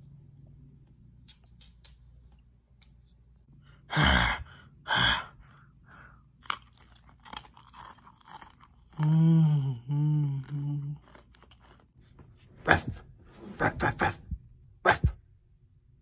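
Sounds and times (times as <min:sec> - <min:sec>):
biscuit crunching and chewing: 0:06.1 - 0:12.2.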